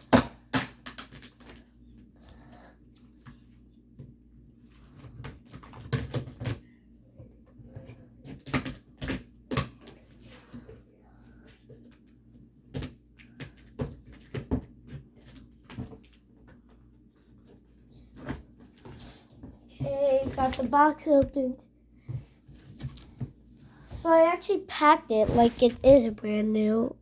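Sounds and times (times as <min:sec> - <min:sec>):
cardboard and tape scraping: 0:25.1 - 0:26.1.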